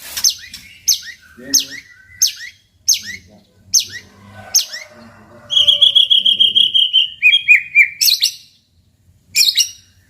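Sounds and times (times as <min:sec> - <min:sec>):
bird singing whistles and trills: 0:00.2 - 0:04.0, 0:05.6 - 0:08.6.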